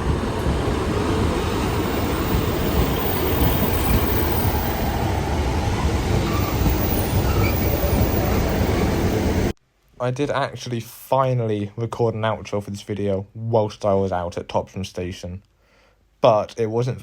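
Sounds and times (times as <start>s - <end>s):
train rumbling on tracks: 0.0s - 9.6s.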